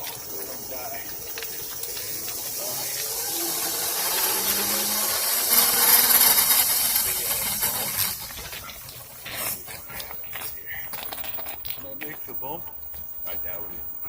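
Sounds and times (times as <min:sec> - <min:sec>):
loud rolling hiss: 0:00.0 - 0:10.9
small tractor motor running: 0:00.0 - 0:11.8.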